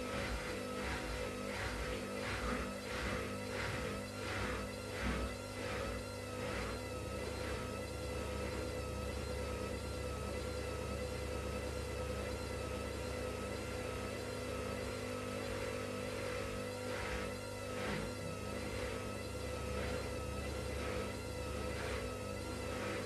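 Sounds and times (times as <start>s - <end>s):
washing machine running: 0.0s - 23.0s.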